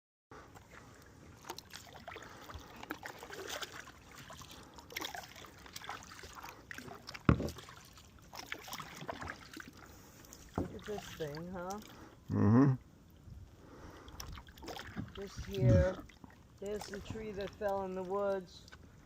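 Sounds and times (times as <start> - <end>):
paddle splashes in water: 0.5 - 12.0, 14.0 - 18.8
dripping trickles: 14.0 - 18.8.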